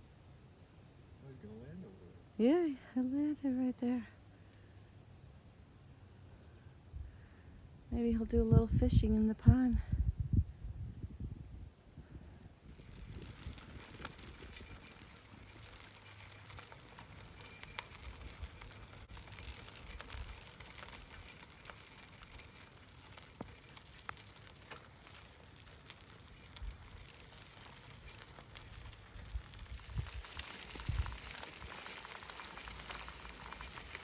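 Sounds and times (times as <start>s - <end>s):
low rumble of tyres: 4.2s - 34.0s
bicycle tyres crackling on gravel: 12.0s - 34.0s.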